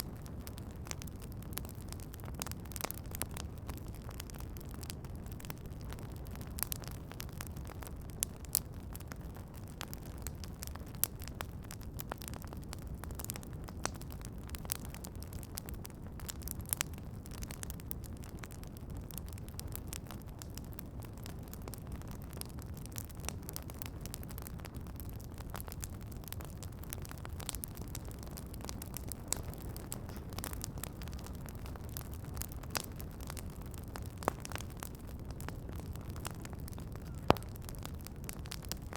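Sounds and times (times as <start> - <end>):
campfire crackling and popping: 0.0 - 38.9.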